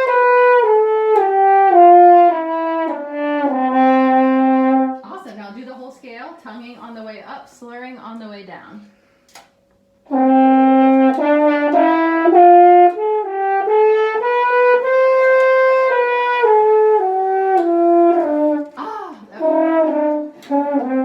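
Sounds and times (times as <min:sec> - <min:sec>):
french horn playing a scale: 0:00.0 - 0:05.1, 0:10.0 - 0:21.0.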